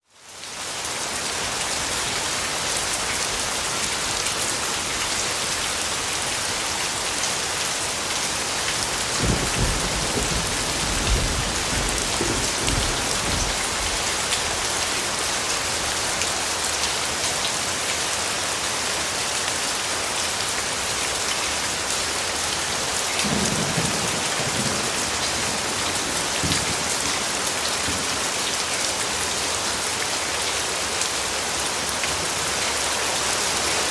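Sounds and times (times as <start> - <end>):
steady rain falling: 0.0 - 33.9
thunder rumbling: 9.0 - 14.6.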